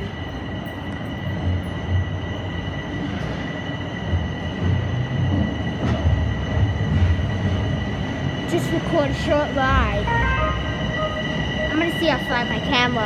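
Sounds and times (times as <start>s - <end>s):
subway train wheels rumbling: 0.0s - 13.0s
high-pitched wheel squeal: 10.0s - 12.0s.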